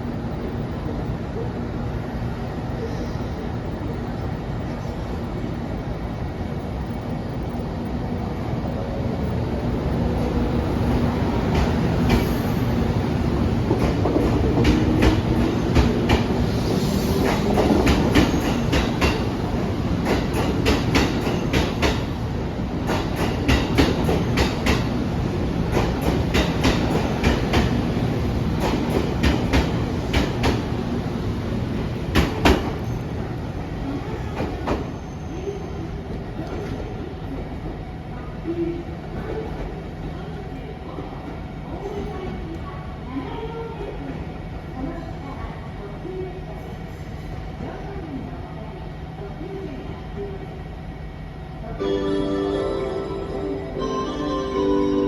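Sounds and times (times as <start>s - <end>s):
train running noise: 0.0s - 48.0s
train wheels clicking over rail joints: 20.0s - 22.2s, 22.8s - 24.9s, 25.7s - 27.8s, 28.5s - 30.7s.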